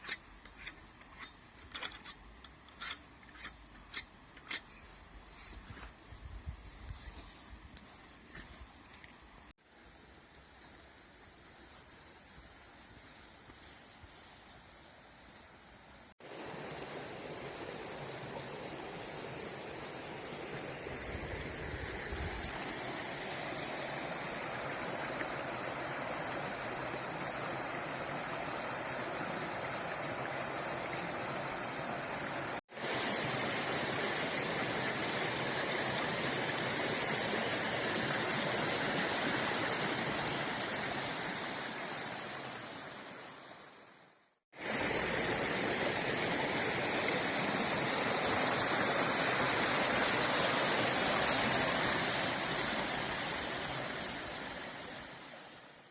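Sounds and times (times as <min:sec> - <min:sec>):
river water rushing: 0:16.2 - 0:43.9, 0:44.6 - 0:55.9.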